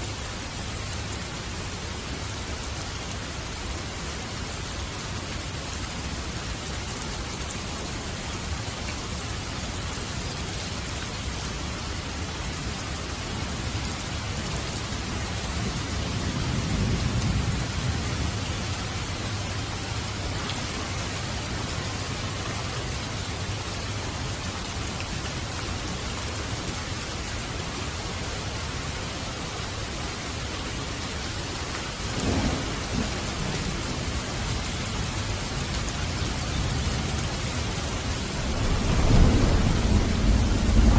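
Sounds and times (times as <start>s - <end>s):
steady rain falling: 0.0s - 40.9s
thunder rumbling: 15.6s - 19.1s, 32.0s - 35.4s, 37.9s - 40.9s
sharp thunderclap: 32.1s - 33.6s, 38.4s - 40.9s.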